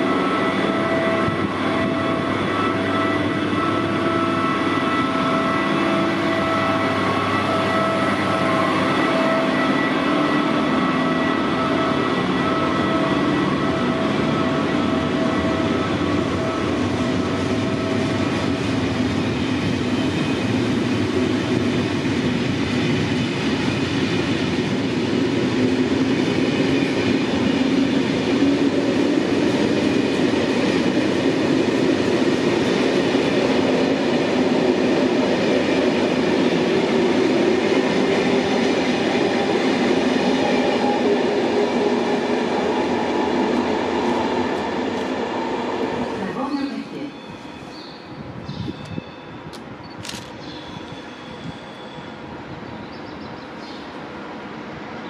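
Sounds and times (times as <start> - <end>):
train wheels rolling on rails: 0.0 - 55.0.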